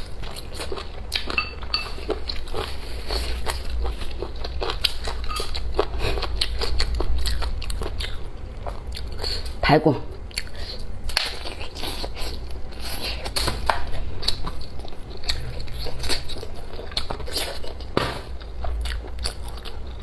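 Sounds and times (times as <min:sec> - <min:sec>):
person chewing food: 0:00.0 - 0:20.0
tableware clinks: 0:01.4 - 0:02.0.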